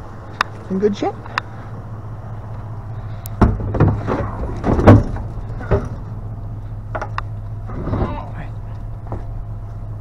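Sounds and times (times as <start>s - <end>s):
vehicle engine idling: 0.0s - 10.0s
items knocking and clattering: 3.4s - 6.0s.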